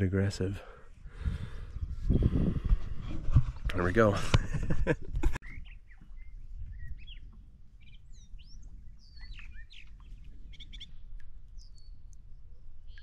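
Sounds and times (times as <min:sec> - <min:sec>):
songbirds chirping and whistling: 0:05.4 - 0:13.0.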